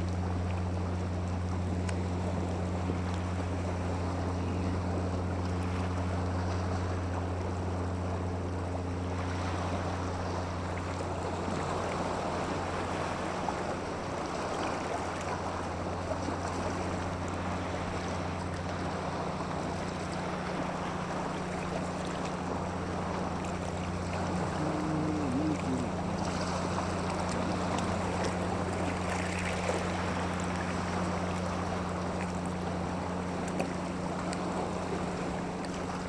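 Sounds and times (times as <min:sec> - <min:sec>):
constant low hum: 0:00.0 - 0:36.0
wind: 0:00.0 - 0:36.0
water rushing: 0:05.1 - 0:36.0.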